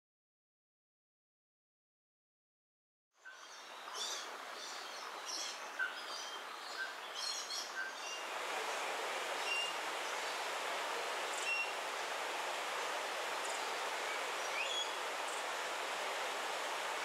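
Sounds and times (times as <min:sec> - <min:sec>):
wild birds chirping: 0:03.2 - 0:17.0
rushing outdoor hiss: 0:03.4 - 0:17.0.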